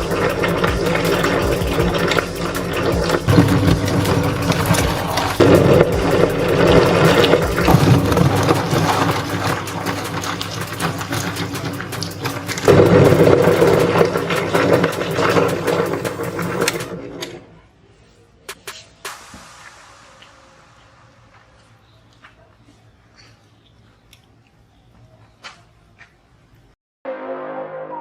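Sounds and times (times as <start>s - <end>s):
meat grinder motor humming: 0.0s - 16.9s
shells cracking and crunching: 0.1s - 16.9s.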